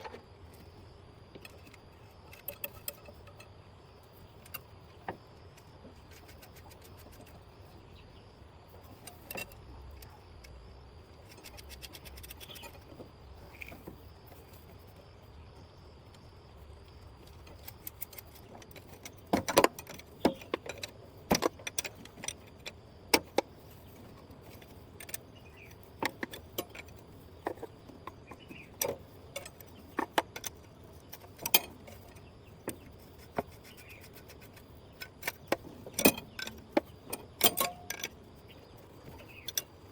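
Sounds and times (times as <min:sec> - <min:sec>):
metal parts clinking: 0:33.6 - 0:38.3.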